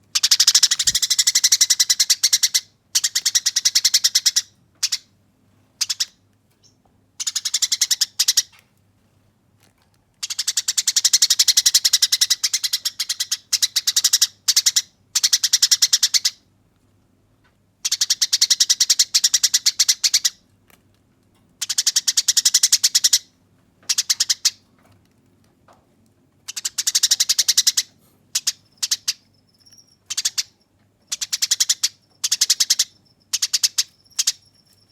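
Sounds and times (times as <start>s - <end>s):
sparrow harsh chatter-trills: 0.5s - 2.2s.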